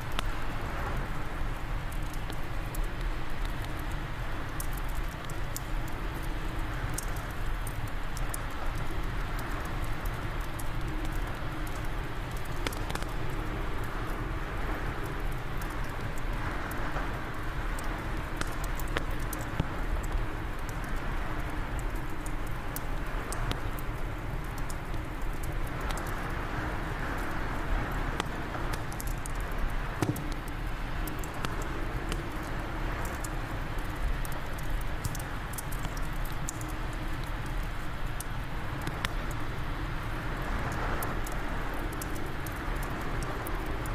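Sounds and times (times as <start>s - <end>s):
wood fire crackling and popping: 0.0s - 43.9s.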